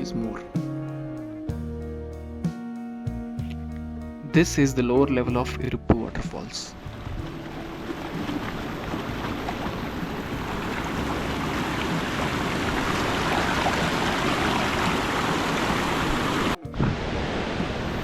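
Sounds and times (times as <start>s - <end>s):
waterfall rushing hiss: 8.3s - 18.0s.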